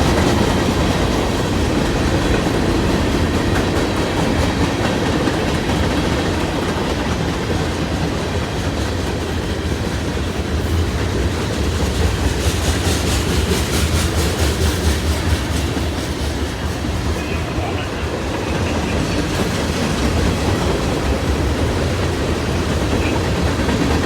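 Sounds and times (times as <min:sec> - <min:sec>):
train wheels rumbling on rail: 0:00.0 - 0:24.0
wheels clicking over rail joints: 0:11.1 - 0:24.0.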